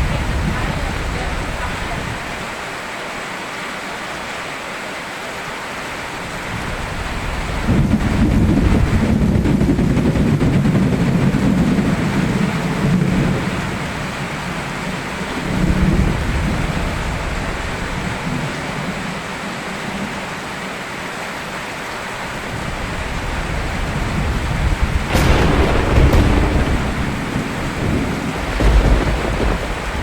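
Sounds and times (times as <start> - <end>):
steady rain: 23.6 - 30.0
thunder rumbling: 25.0 - 30.0.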